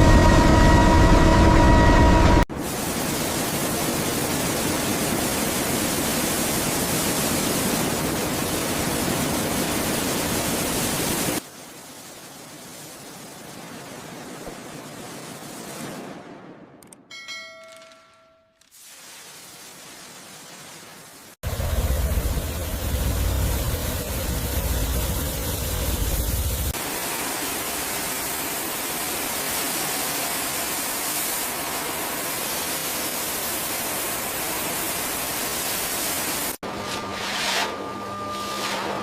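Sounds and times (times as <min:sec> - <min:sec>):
high-pressure spray hissing: 0:02.6 - 0:11.4, 0:21.8 - 0:36.6
deep rumble: 0:21.4 - 0:26.8.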